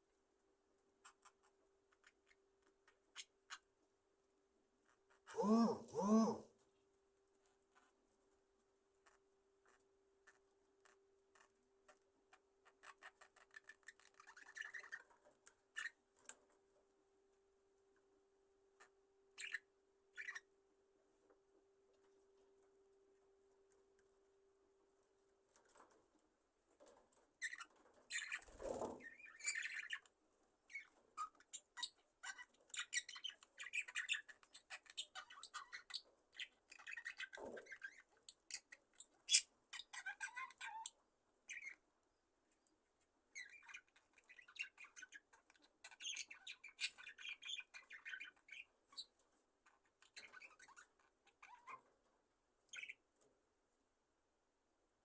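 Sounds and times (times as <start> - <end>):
budgerigars chirping: 19.4 - 19.6, 20.2 - 20.4, 29.1 - 30.1, 43.4 - 49.1, 52.7 - 53.0.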